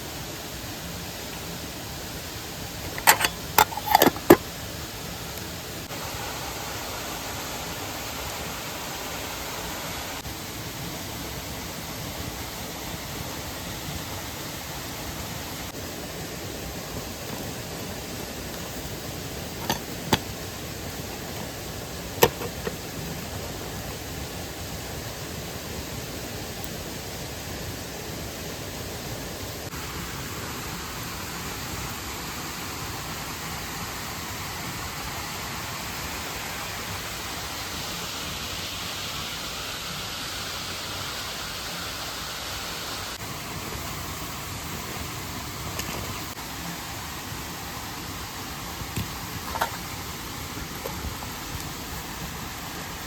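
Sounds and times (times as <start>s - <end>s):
mountain stream and waterfall rushing: 0.0s - 53.0s.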